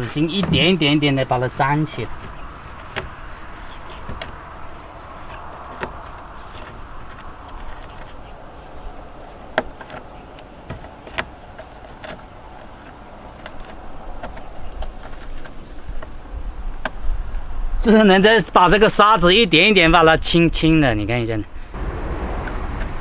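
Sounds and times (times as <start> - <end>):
insect pulsing trill: 0.0 - 14.9
insects chirring: 0.0 - 23.0.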